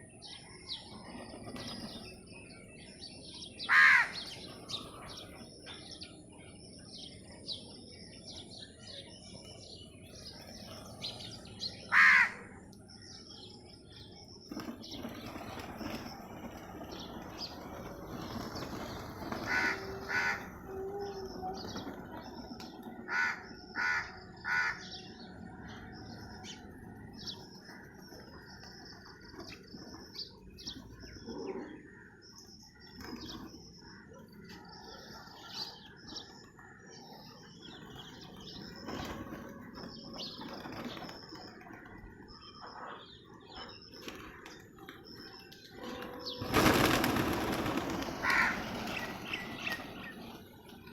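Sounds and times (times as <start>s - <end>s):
sparrows chirping: 0.0s - 50.9s
crow cawing: 11.9s - 12.4s, 19.5s - 20.4s, 23.1s - 24.8s, 48.2s - 48.6s.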